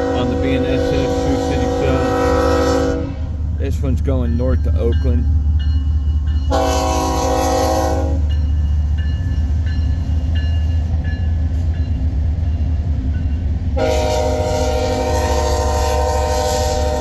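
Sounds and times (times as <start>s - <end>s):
locomotive horn blasts: 0.0s - 3.3s, 6.5s - 8.3s, 13.8s - 17.0s
low train rumble: 0.0s - 17.0s.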